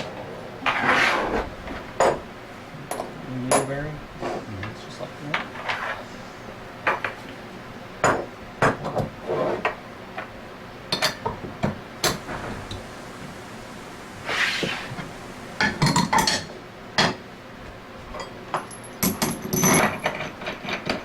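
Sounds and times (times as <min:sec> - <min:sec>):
metal scrape: 0:00.6 - 0:01.5, 0:05.5 - 0:06.2, 0:14.2 - 0:15.7.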